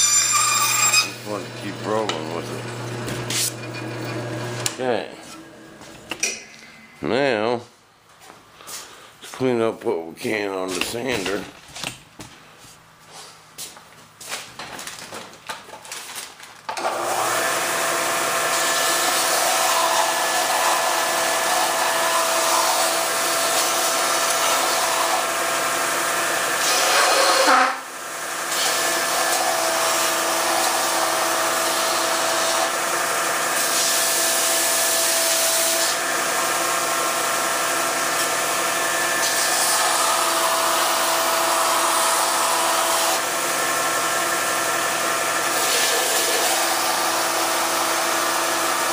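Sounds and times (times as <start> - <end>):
electric sander sanding wood: 0.0 - 6.1, 16.8 - 48.9.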